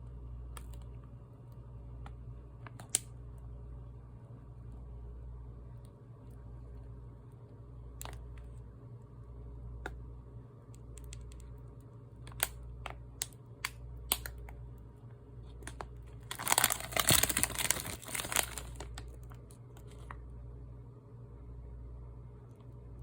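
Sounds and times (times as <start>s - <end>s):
low machine hum: 0.0s - 23.0s
crackling sizzle: 16.2s - 19.1s.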